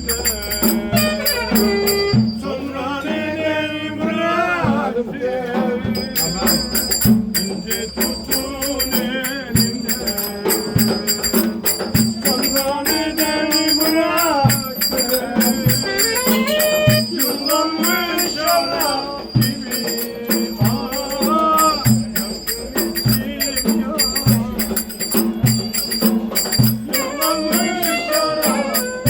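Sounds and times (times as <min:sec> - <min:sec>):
drum beat: 0:00.0 - 0:02.4, 0:05.7 - 0:29.0
jingling percussion: 0:00.0 - 0:03.1, 0:05.8 - 0:29.0
ornamented melody line: 0:06.1 - 0:29.0.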